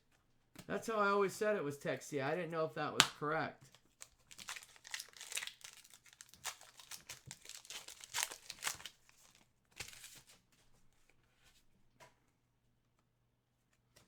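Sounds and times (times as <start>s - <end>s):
wrapper crinkling and tearing: 3.7s - 10.4s.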